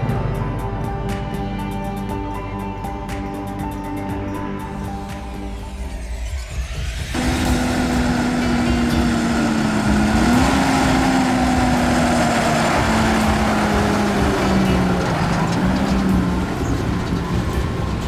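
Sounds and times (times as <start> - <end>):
diesel engine under load: 7.2 - 18.0.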